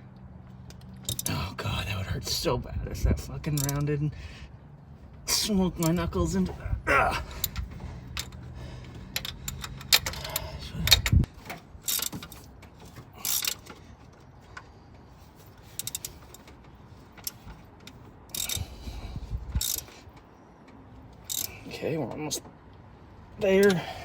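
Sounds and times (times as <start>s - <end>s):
ratchet wrench clicking: 0.7s - 1.3s, 3.5s - 3.9s, 9.1s - 12.4s, 13.2s - 13.8s, 15.7s - 16.5s, 18.3s - 18.9s, 19.5s - 20.0s, 21.2s - 21.6s.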